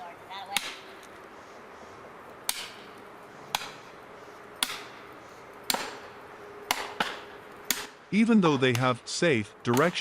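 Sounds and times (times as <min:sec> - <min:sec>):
hammer striking wedge: 0:02.5 - 0:02.8, 0:03.5 - 0:03.8, 0:04.6 - 0:05.0, 0:05.7 - 0:06.1, 0:06.7 - 0:07.9.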